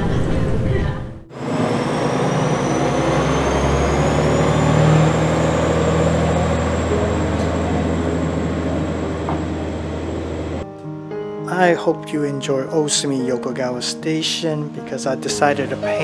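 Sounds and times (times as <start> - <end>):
train engine hum and whine: 0.0 - 10.6.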